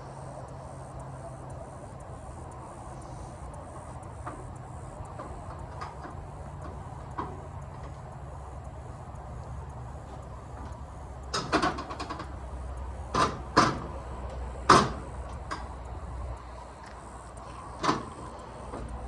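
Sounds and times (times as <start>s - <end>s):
low steady hum: 0.0s - 19.0s
sharp clunks and knocks: 13.1s - 13.9s, 14.7s - 15.7s, 17.8s - 18.9s.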